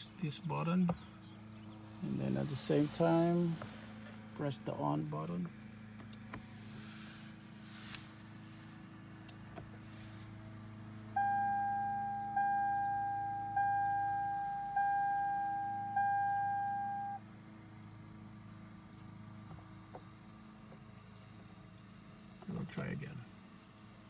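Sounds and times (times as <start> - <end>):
car dashboard chime beeps: 11.2 - 17.2.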